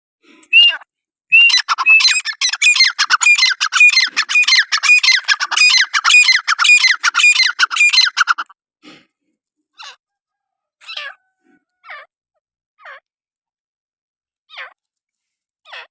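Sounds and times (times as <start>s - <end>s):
francolin calling harsh phrases: 0.5s - 8.5s.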